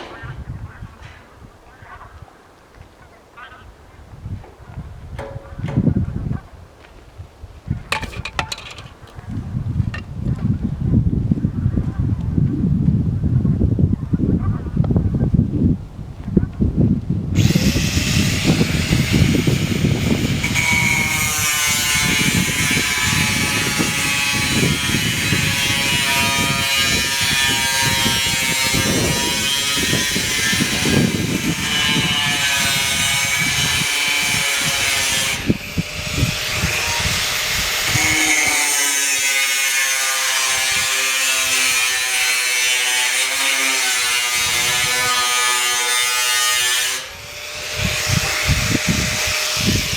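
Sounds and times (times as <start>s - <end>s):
power tool cutting steel sheet: 17.4s - 49.9s.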